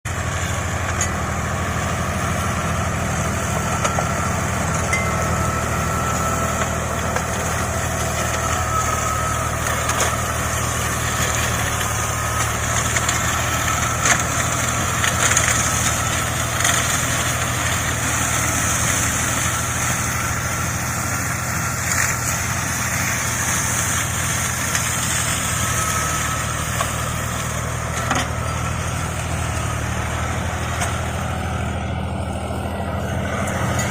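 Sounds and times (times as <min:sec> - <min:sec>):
tractor engine running: 0:00.0 - 0:33.9
knocks and cracks in mulcher: 0:06.5 - 0:18.0.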